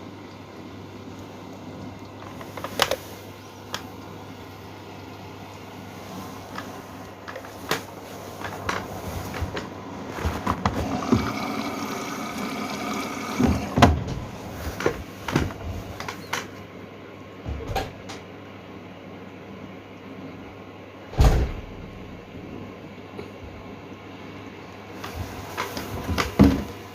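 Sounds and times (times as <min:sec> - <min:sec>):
washing machine hum: 0:00.0 - 0:26.9
washing machine knocks and clunks: 0:08.4 - 0:11.7, 0:13.2 - 0:16.4, 0:17.4 - 0:18.2, 0:21.1 - 0:22.1, 0:26.0 - 0:26.9.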